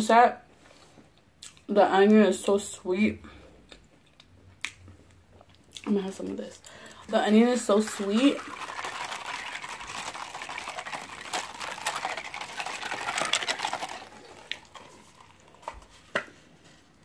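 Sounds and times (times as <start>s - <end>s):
crunchy chewing: 8.4s - 16.1s.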